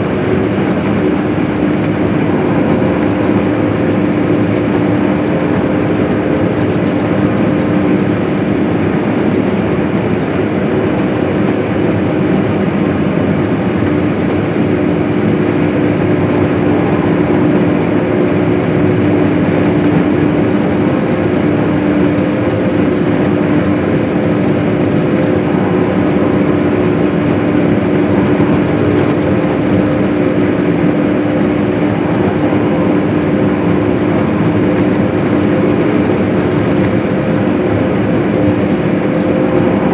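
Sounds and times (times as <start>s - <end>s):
swather engine and machinery drone: 0.0s - 39.9s.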